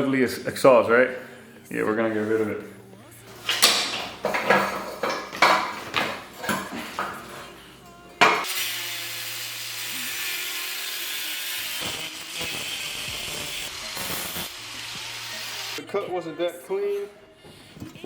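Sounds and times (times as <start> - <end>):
power tool cutting metal pipe: 8.2 - 15.8.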